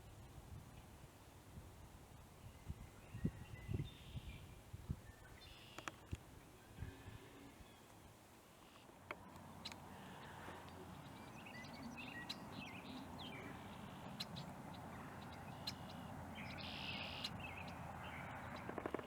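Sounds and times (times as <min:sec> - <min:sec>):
birds chirping and trilling: 0:08.6 - 0:19.0
buzzy bird call: 0:09.5 - 0:19.0.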